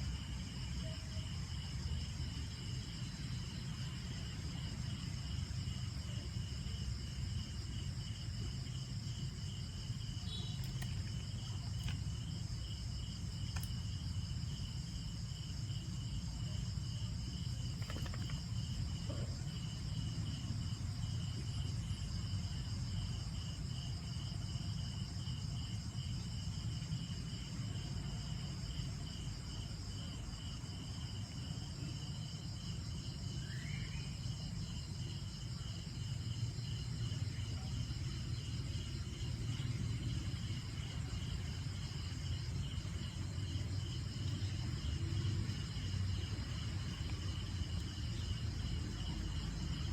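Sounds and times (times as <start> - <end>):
insects chirping: 0.0 - 49.9.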